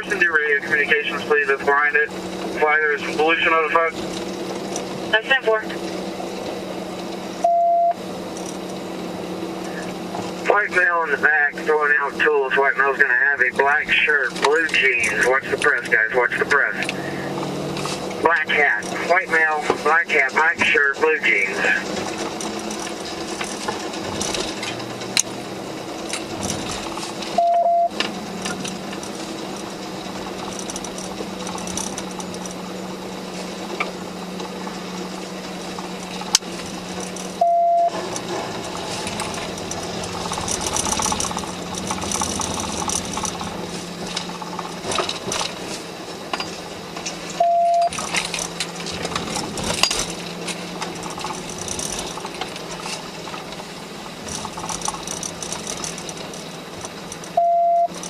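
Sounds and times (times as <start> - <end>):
car engine and road noise: 0.0 - 58.0
short electronic beep: 7.4 - 8.0, 27.4 - 28.0, 37.4 - 38.0, 47.4 - 47.9, 57.4 - 57.9
clicks and rattles: 21.8 - 25.4, 26.0 - 32.6, 35.8 - 37.4, 38.0 - 58.0.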